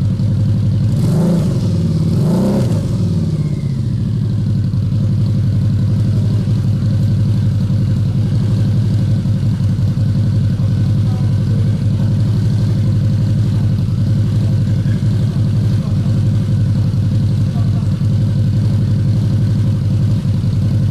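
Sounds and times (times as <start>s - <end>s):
motorcycle engine idling: 0.0s - 20.9s.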